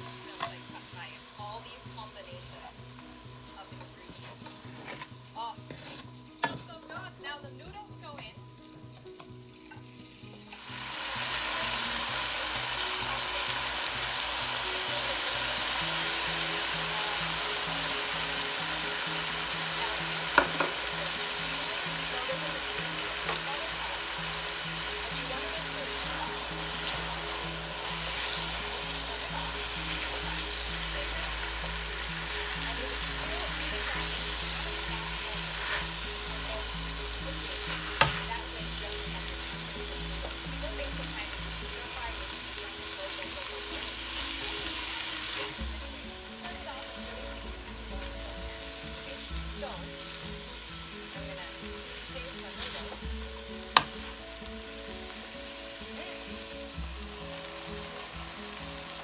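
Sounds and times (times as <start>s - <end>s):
noodles sizzling in a wok: 0.0s - 59.0s
tongs knocking a wok: 20.3s - 20.9s, 37.9s - 38.3s, 53.6s - 54.1s.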